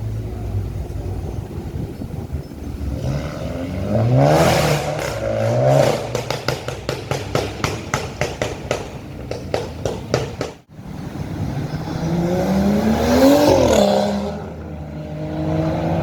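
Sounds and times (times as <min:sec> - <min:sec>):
car engine revving hard: 0:02.6 - 0:07.9, 0:11.3 - 0:16.0
exhaust pops and crackles: 0:03.8 - 0:10.7.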